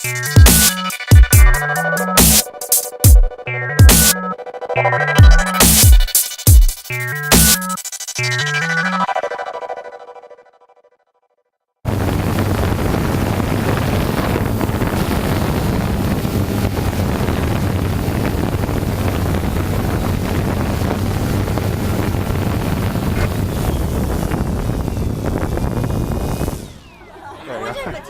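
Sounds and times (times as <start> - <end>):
wind rushing on microphone: 11.9 - 26.9.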